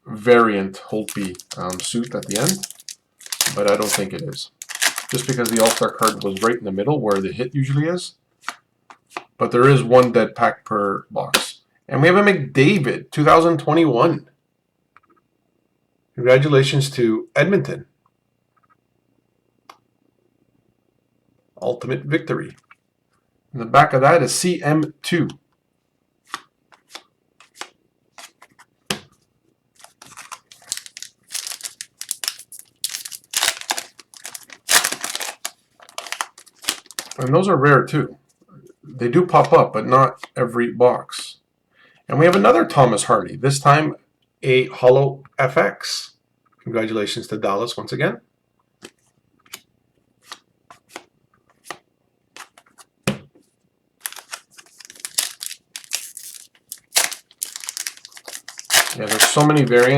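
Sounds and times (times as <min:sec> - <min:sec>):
cards rustling: 0:00.9 - 0:07.4, 0:26.3 - 0:28.7, 0:29.8 - 0:37.3, 0:52.4 - 0:52.9, 0:54.0 - 0:59.9
wrapper crinkling and tearing: 0:01.0 - 0:07.2, 0:29.8 - 0:37.3, 0:54.0 - 0:59.9.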